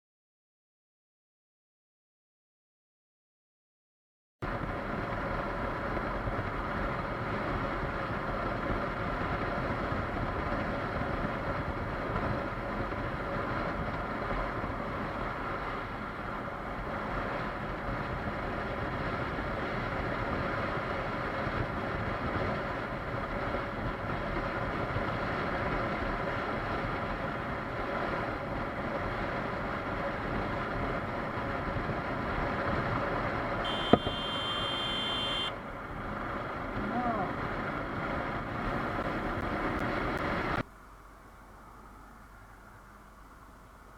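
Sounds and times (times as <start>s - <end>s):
wind and road noise: 4.4s - 43.9s
motorcycle engine running: 29.3s - 40.6s.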